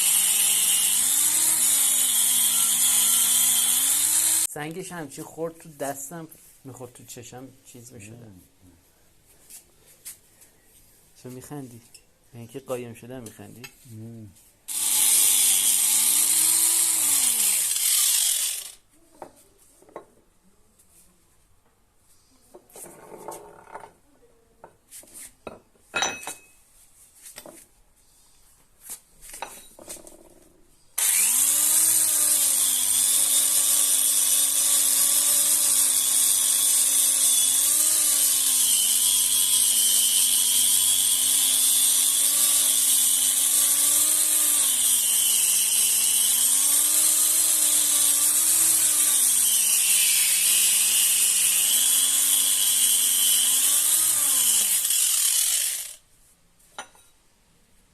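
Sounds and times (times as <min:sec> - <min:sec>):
electric grinder running: 0:00.0 - 0:04.5, 0:14.7 - 0:18.8, 0:31.0 - 0:56.0
metal tools clinking: 0:26.0 - 0:26.6.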